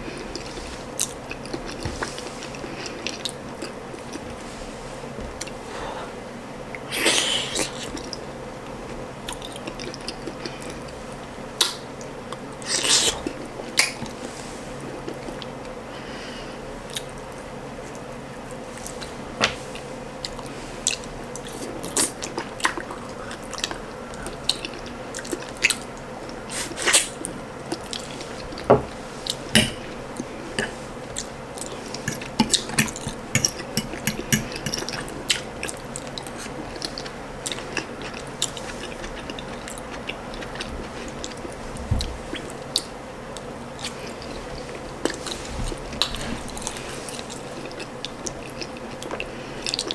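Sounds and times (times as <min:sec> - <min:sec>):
wet chewing: 0:19.8 - 0:49.9.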